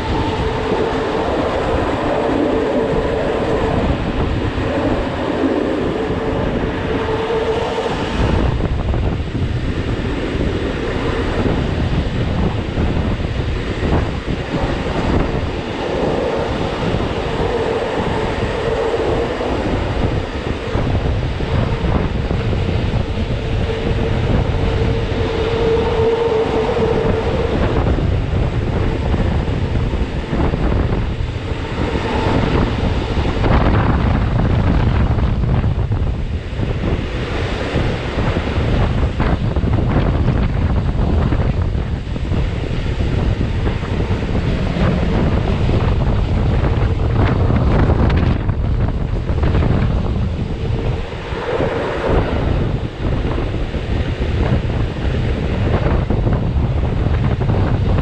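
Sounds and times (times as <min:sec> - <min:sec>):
humming tone: 0:00.0 - 0:58.0
train wheels rumbling on rail: 0:00.0 - 0:58.0.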